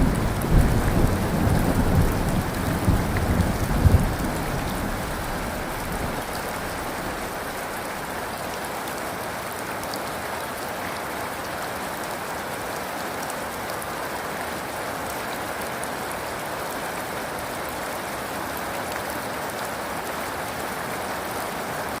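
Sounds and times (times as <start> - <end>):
low thunder rumble: 0.0 - 7.8
heavy rain falling: 0.0 - 22.0.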